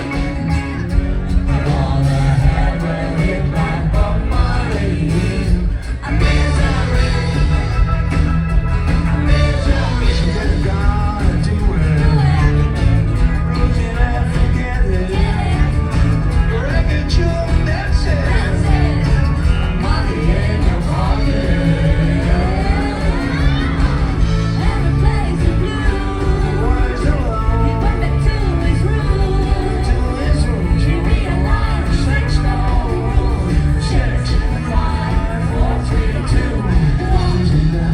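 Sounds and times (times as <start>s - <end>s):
rock band playing: 0.0s - 37.9s
person singing: 16.5s - 37.9s.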